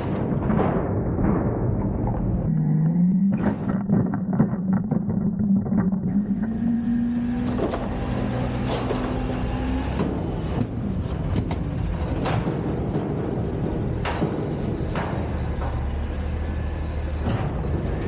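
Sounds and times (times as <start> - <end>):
metal knocks and clanks: 0.0 - 16.3
diesel engine revving: 5.6 - 12.2.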